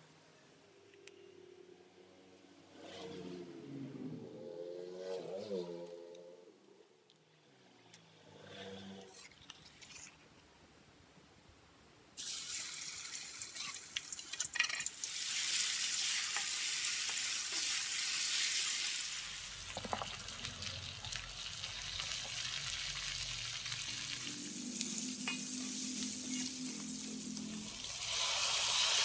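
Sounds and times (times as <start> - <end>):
spice paste sizzling in oil: 12.2 - 29.0
metal spatula scraping wok: 23.9 - 27.8.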